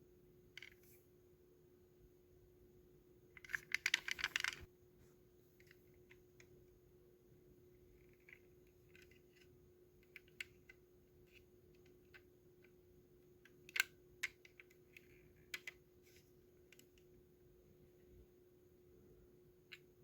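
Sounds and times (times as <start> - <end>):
faint steady hum: 0.0 - 20.0
small irregular clicks and taps: 8.0 - 12.8, 13.4 - 15.8, 16.7 - 17.1, 19.7 - 19.9.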